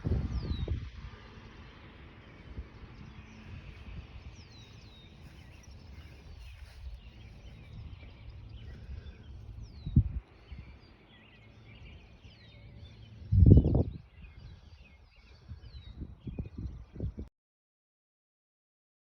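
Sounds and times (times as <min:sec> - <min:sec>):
low steady rumble: 0:00.0 - 0:17.3
bird chirping: 0:02.2 - 0:17.2.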